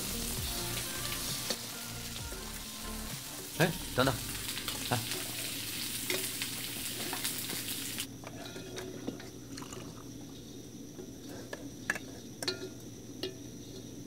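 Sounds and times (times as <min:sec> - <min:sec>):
food sizzling in hot oil: 0:00.0 - 0:10.6.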